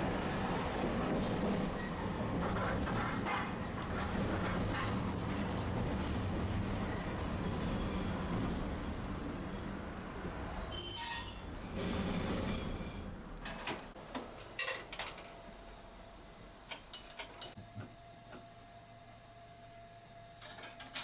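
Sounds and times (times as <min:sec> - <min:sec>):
streetcar rumble: 0:00.0 - 0:17.6
brief high squeal: 0:10.0 - 0:13.1.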